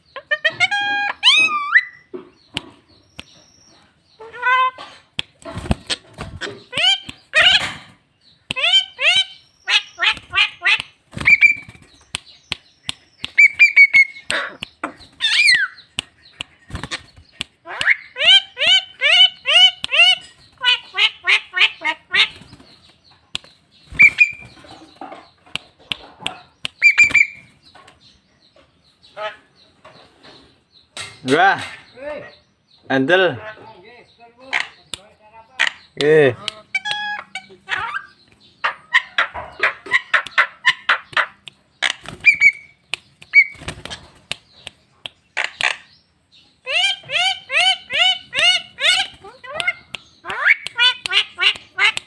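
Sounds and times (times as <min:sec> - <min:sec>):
myna calling: 0:00.0 - 0:02.1, 0:05.7 - 0:11.8, 0:13.2 - 0:22.6, 0:33.4 - 0:43.7, 0:46.6 - 0:52.0
sharp clicks: 0:10.0 - 0:18.0, 0:22.3 - 0:27.5, 0:41.0 - 0:46.0, 0:48.4 - 0:52.0.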